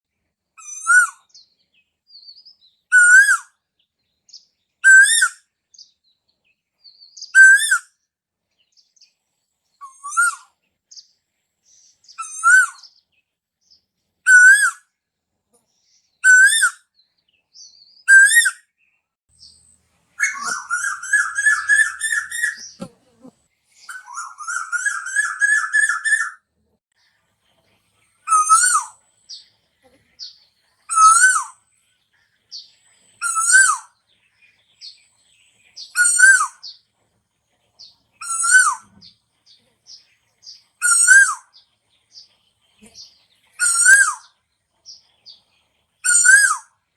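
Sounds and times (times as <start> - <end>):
koel calling: 20.2 - 26.4.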